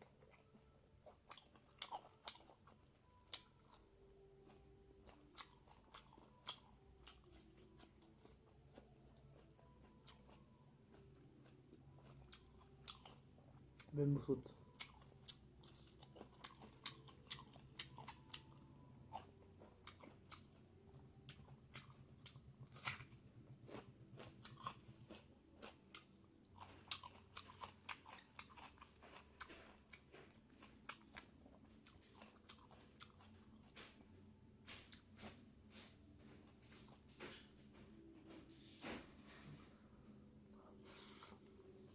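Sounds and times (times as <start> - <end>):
person chewing and biting: 0.2 - 3.8, 5.0 - 13.9, 14.6 - 20.6, 21.3 - 34.1.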